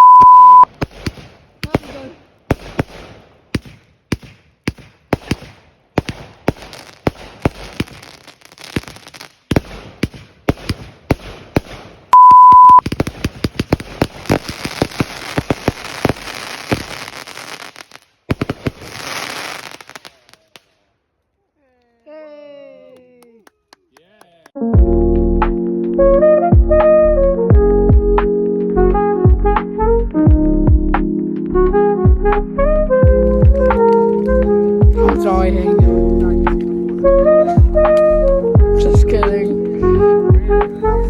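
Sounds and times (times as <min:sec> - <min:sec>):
loud one-tone beep: 0:00.0 - 0:00.7, 0:12.2 - 0:12.8
fireworks bangs: 0:00.0 - 0:20.7
fireworks crackling: 0:00.3 - 0:20.9, 0:33.3 - 0:40.9.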